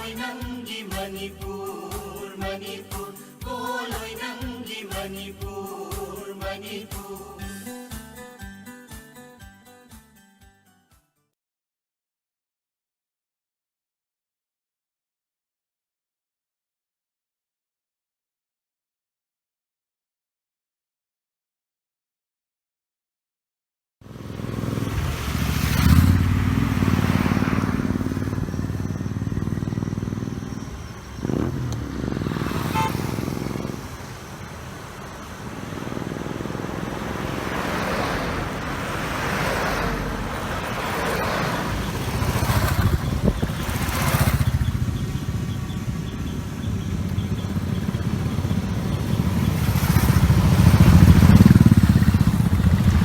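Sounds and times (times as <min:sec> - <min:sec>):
group of motorcycles riding past: 0:24.0 - 0:53.0.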